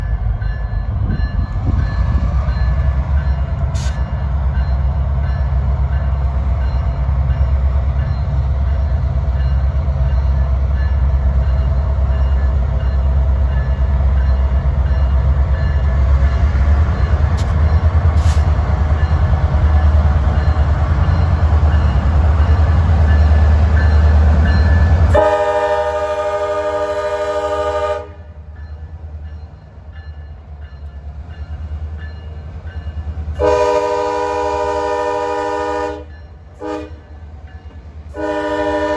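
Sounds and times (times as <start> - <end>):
diesel locomotives rumbling: 0.0 - 38.9
train horn blast: 25.0 - 28.4, 33.4 - 37.1, 38.1 - 38.9.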